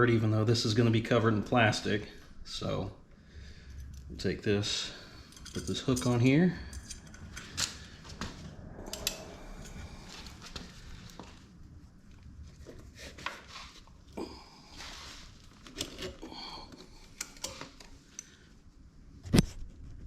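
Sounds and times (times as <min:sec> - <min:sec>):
metal clicks and scraping: 0:05.2 - 0:10.6, 0:15.6 - 0:18.3.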